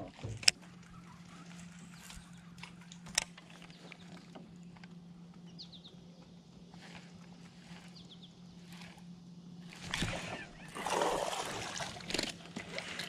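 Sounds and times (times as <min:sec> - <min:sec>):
steady low hum: 0:00.0 - 0:13.0
bird chirping: 0:00.8 - 0:07.0, 0:07.6 - 0:09.0.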